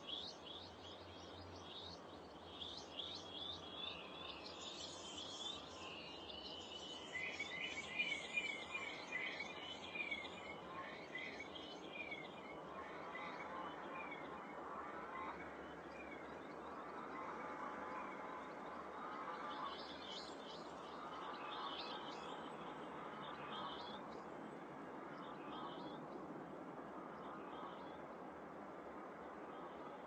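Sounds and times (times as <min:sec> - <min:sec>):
small songbirds chirping: 0:00.0 - 0:14.3.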